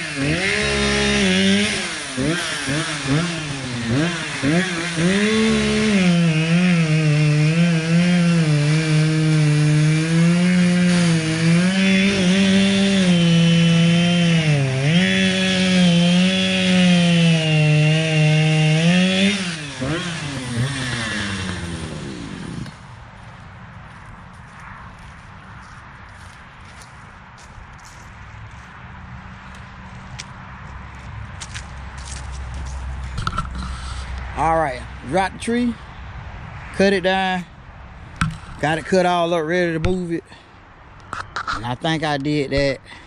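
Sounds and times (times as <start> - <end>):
chainsaw cutting wood: 0.0 - 23.0, 31.4 - 34.4.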